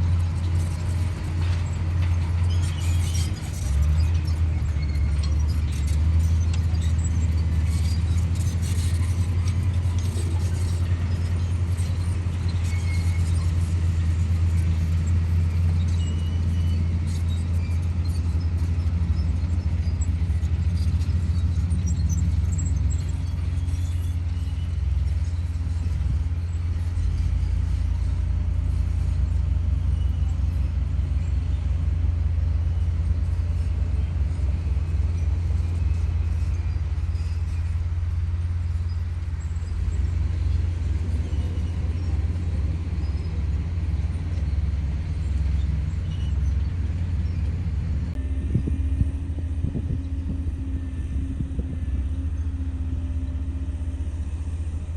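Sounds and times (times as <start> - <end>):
bulldozer diesel engine running: 0.0 - 54.9
high squeaks and clinks: 1.4 - 28.2.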